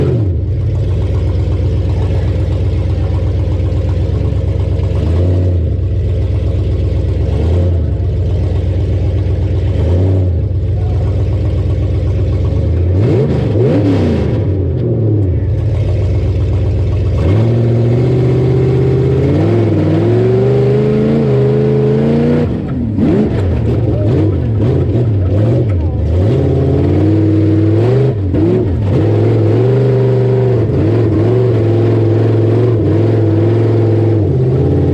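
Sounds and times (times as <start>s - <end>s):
truck engine revving hard: 0.0s - 6.3s, 7.0s - 34.9s.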